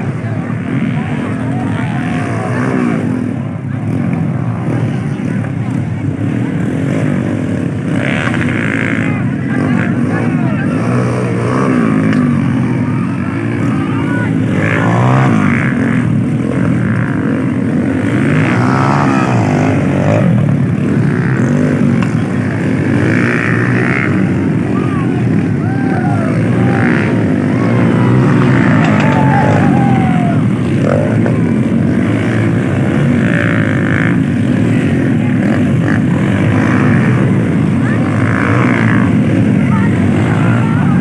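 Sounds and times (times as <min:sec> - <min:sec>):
motocross bike engines revving: 0:00.0 - 0:41.0.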